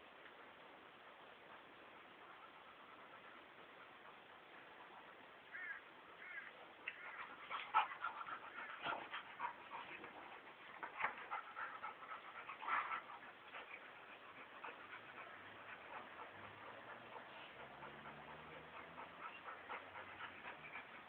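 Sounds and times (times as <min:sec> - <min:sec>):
dogs whining and yelping: 0:06.9 - 0:21.0.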